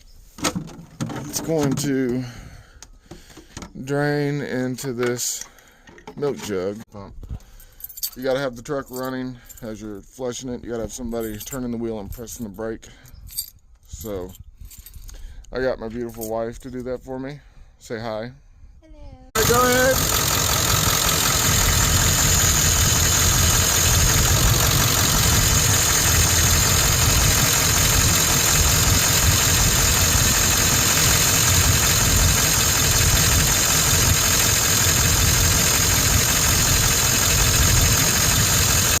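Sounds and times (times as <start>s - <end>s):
diesel engine idling: 19.4s - 39.0s.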